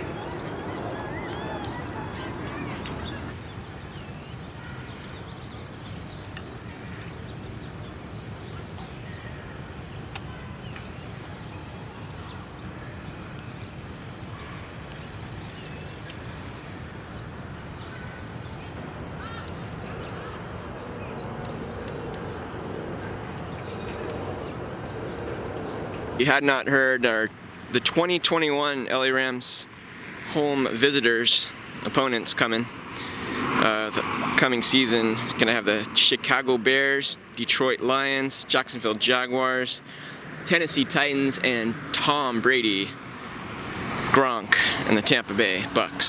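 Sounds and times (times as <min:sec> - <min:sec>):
short bird calls: 0:00.0 - 0:03.4
city background hum: 0:00.0 - 0:46.0.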